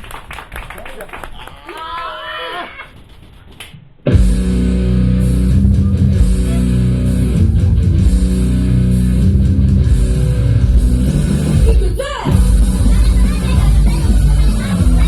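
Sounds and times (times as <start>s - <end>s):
rock music with electric guitar: 4.1s - 15.0s.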